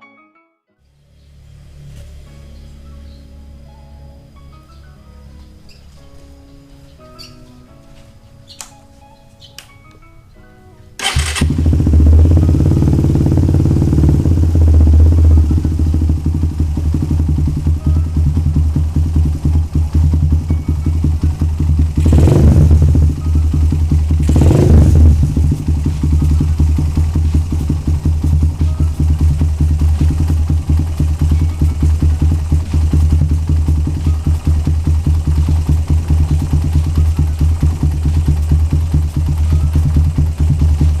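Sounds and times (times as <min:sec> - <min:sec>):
motorcycle engine idling loudly: 0:11.0 - 0:41.0.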